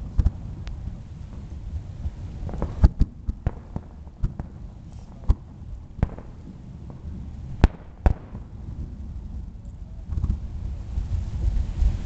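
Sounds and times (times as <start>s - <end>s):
fireworks shells bursting: 2.4s - 8.5s.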